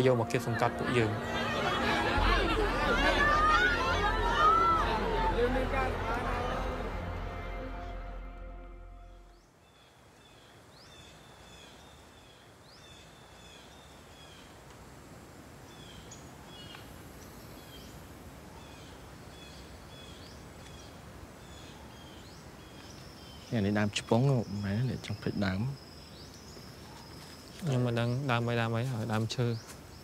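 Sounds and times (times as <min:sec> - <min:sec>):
steady low hiss: 0:00.0 - 0:30.0
birds chirping: 0:15.7 - 0:30.0.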